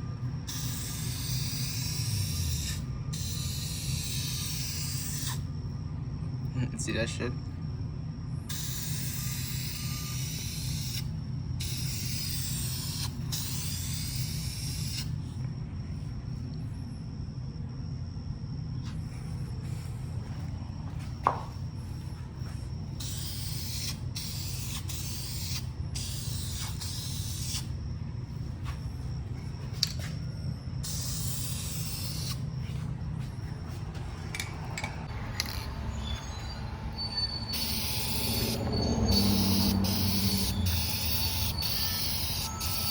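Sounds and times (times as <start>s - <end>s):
steady low hum: 0.0s - 42.9s
spray paint can hissing: 0.5s - 5.4s, 8.5s - 15.1s, 23.0s - 27.7s, 30.8s - 32.4s, 37.5s - 42.9s.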